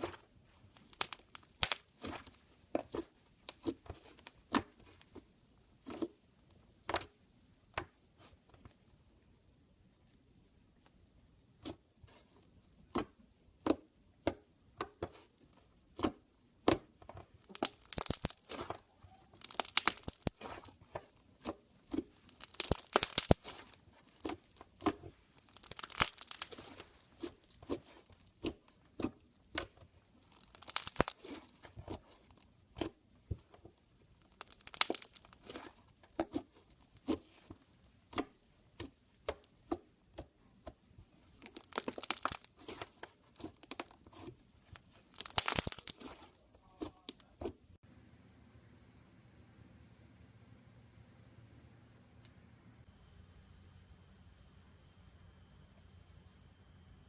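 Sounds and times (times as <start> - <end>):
slime squeezed by hand popping: 0.8 - 2.3, 17.5 - 20.7, 22.2 - 24.4, 25.5 - 26.8, 30.3 - 31.4, 34.3 - 35.6, 41.4 - 43.9, 45.1 - 47.2.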